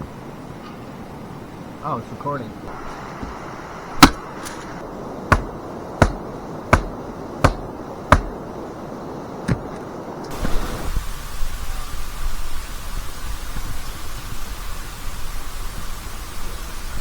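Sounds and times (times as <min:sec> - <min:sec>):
steady hiss: 0:00.0 - 0:17.0
sharp knocks: 0:03.1 - 0:08.5, 0:09.5 - 0:09.9.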